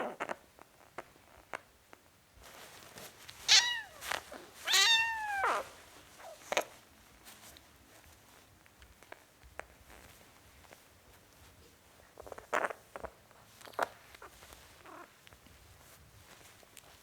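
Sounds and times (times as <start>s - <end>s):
kitten meowing: 3.5s - 4.0s, 4.6s - 5.7s.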